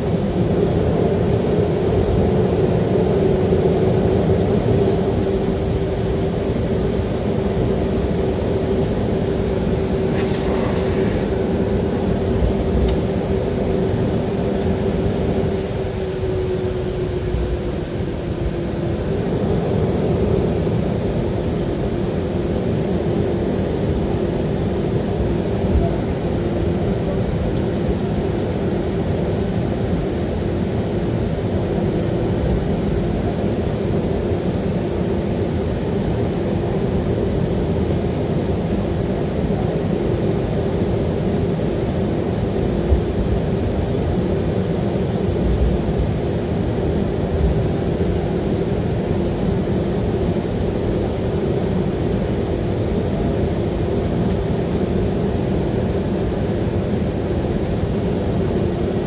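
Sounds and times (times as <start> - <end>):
airplane cabin drone: 0.0 - 59.0
brief click: 10.1 - 11.4.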